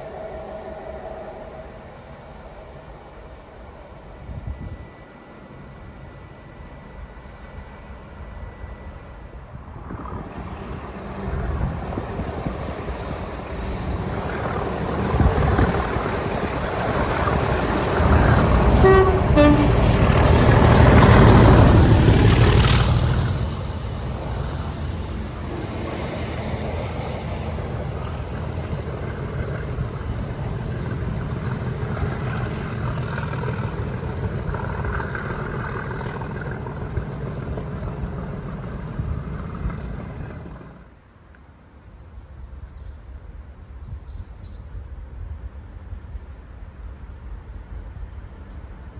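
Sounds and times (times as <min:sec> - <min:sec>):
train passing at speed: 0:00.0 - 0:48.9
train horn toot: 0:16.5 - 0:22.1.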